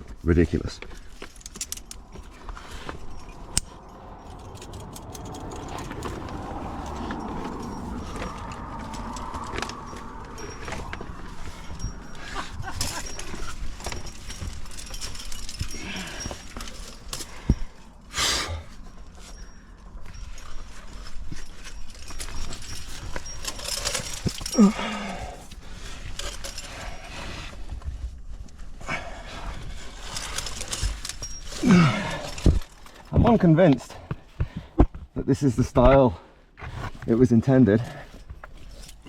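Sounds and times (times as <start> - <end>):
person panting and grunting: 24.5 - 25.4, 31.6 - 32.5
person groaning: 24.6 - 25.3, 31.6 - 32.2.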